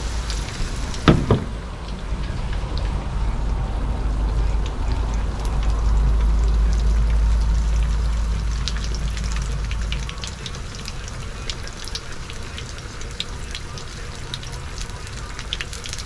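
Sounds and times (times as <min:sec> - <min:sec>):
low rumble: 0:00.0 - 0:12.2
fish deep-frying in hot oil: 0:00.0 - 0:16.0.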